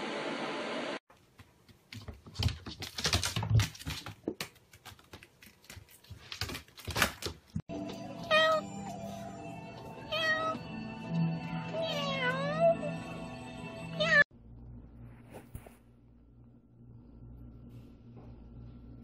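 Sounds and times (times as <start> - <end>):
background music: 7.7 - 14.2
cat meowing: 8.2 - 8.8, 10.0 - 10.6, 11.7 - 12.9.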